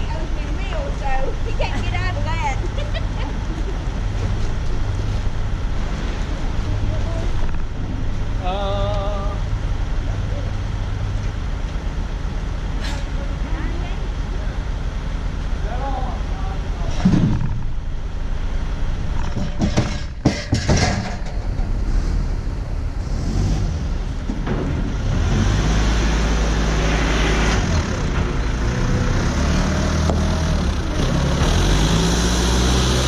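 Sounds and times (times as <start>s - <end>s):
heavy vehicle engine running: 0.0s - 33.0s
sharp knocks and clatters: 16.9s - 17.8s, 19.1s - 21.9s, 24.2s - 25.7s.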